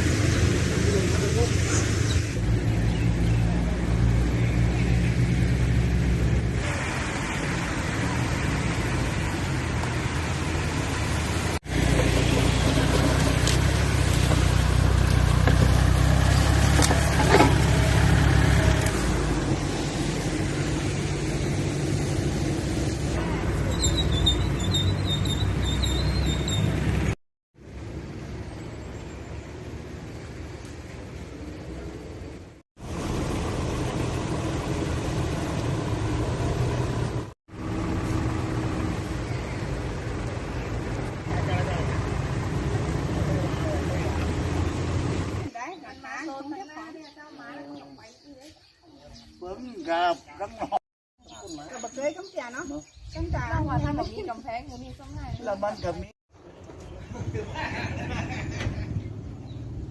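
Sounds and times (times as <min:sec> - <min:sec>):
vehicle engine running: 0:02.4 - 0:24.5, 0:25.9 - 0:45.5.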